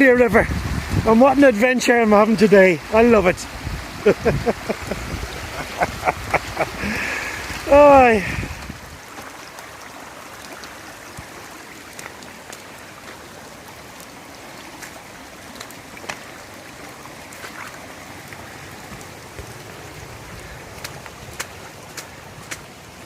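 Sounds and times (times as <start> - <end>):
steady rain: 0.0 - 23.0
water running down a path: 0.0 - 23.0
raindrop taps: 10.4 - 14.2, 14.8 - 16.4, 17.3 - 22.8.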